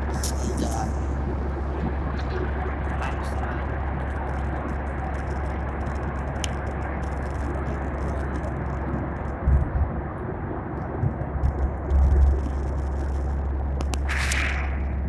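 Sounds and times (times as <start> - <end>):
airliner cabin rumble: 0.0 - 15.0
low thumps: 9.3 - 12.6.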